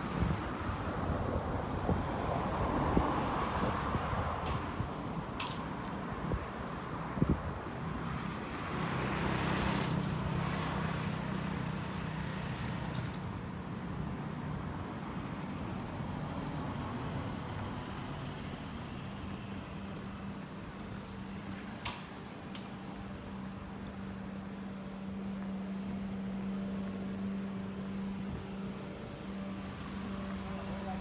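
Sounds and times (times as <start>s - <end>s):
passing vehicle rush: 0.0s - 21.5s
vehicle engine humming: 3.6s - 31.0s.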